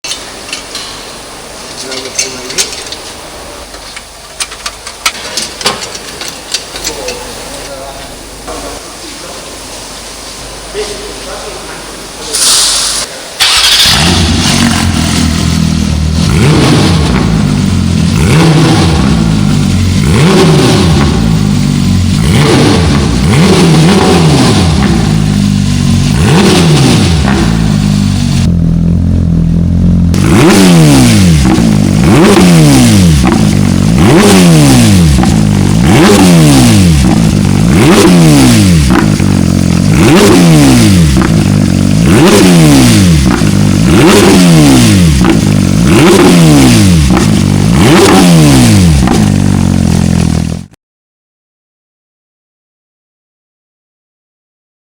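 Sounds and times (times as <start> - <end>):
car engine revving in throttle blips: 13.4 - 50.7.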